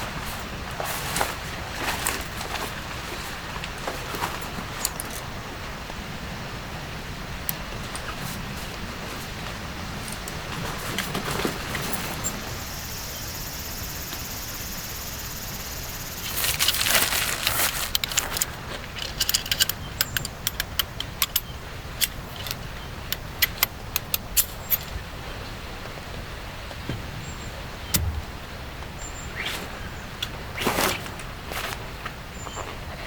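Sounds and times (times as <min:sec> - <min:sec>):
rustling: 0:00.0 - 0:05.3, 0:15.5 - 0:19.4
rain hissing: 0:03.5 - 0:18.0.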